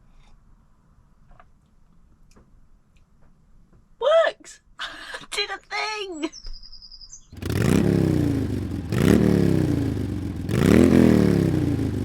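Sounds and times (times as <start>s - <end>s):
engine revving: 7.3s - 12.0s.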